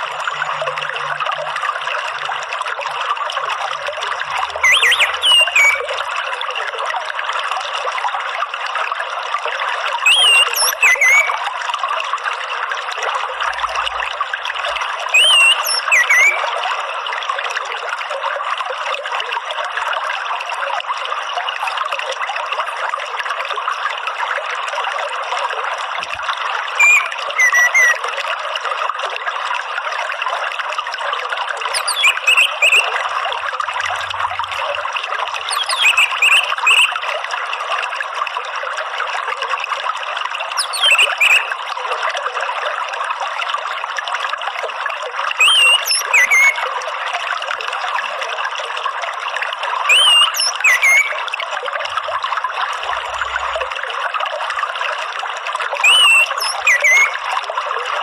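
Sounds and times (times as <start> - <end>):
trickling running water: 0.0 - 58.0
bird twittering: 4.3 - 5.9, 10.1 - 11.4, 15.1 - 16.4, 26.8 - 28.0, 31.7 - 33.0, 35.4 - 37.0, 40.6 - 41.5, 45.4 - 46.6, 49.9 - 51.2, 55.8 - 57.2.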